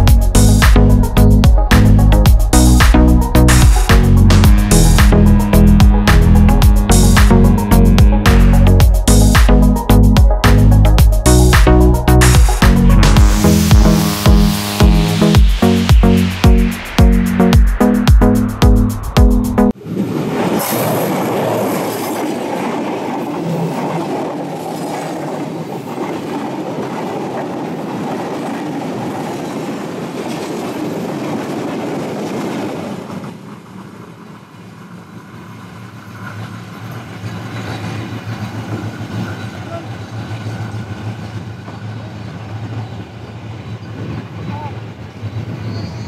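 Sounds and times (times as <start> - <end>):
train wheels rumbling and rattling: 21.6 - 46.0.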